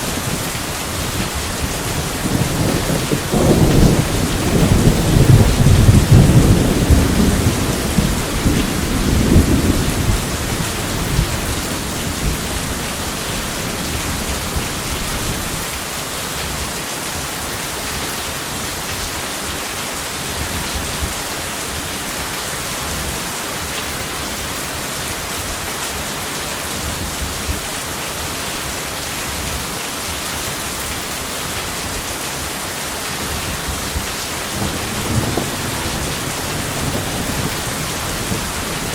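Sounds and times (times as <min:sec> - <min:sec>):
heavy rain: 0:00.0 - 0:38.9
thunder rumbling: 0:00.1 - 0:15.6, 0:34.5 - 0:38.9.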